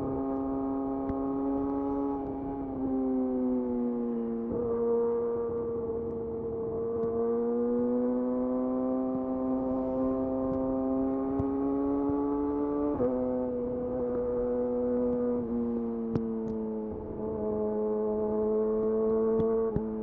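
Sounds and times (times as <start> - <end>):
motorcycle engine at high revs: 4.3 - 20.0.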